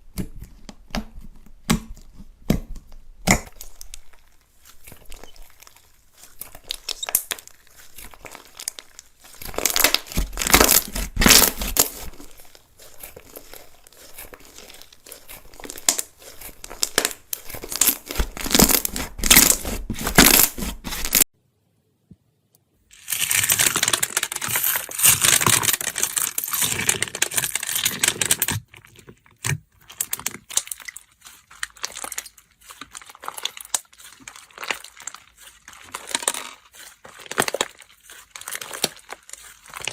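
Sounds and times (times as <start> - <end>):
slime crackling and popping: 1.7 - 21.3, 29.9 - 39.9.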